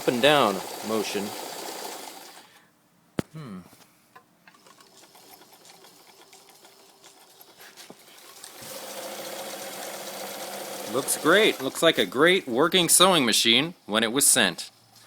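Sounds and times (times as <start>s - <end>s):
electric sewing machine running: 0.0s - 2.5s, 8.2s - 12.0s.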